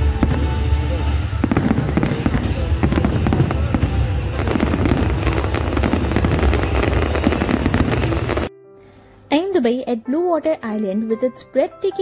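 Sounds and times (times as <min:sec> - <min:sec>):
fireworks crackling: 0:00.0 - 0:08.5
rumble of shell explosions: 0:00.0 - 0:08.5.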